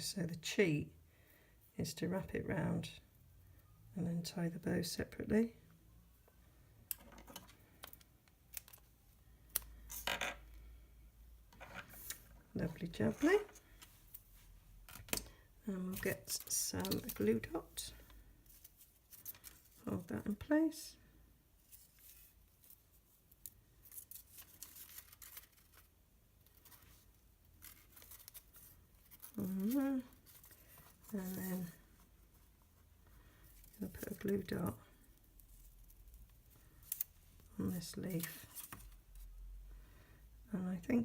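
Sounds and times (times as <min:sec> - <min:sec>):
ribbon rustle: 0:15.8 - 0:20.4, 0:21.6 - 0:39.4.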